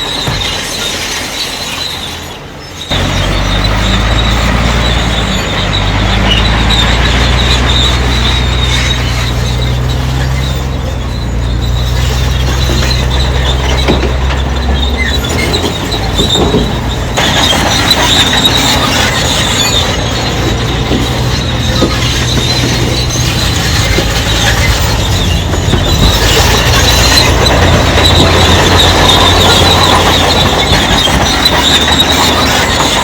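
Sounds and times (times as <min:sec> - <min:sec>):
bulldozer tracks squealing and clanking: 0:00.0 - 0:33.0
diesel engine droning: 0:01.8 - 0:33.0.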